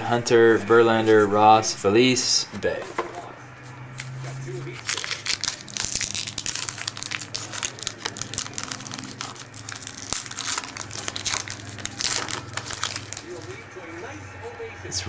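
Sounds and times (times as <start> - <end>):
card pack wrapper crinkling: 4.8 - 13.6.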